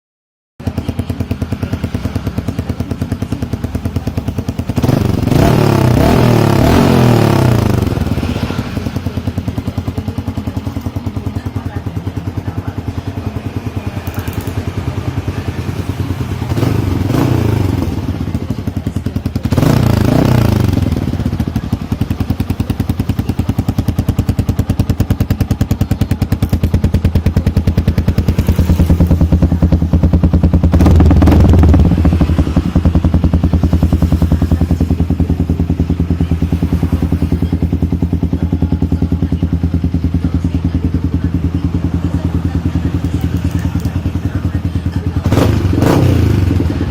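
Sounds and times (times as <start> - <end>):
motorcycle engine idling: 0.6 - 46.9
motorcycle engine revving blips: 0.6 - 46.9.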